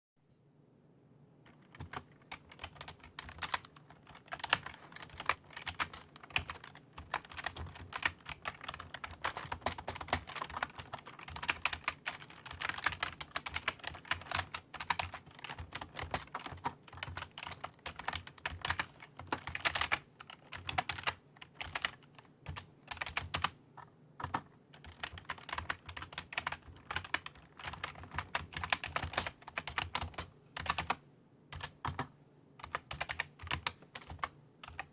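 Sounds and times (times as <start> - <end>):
typing on computer keyboard: 1.5 - 34.9.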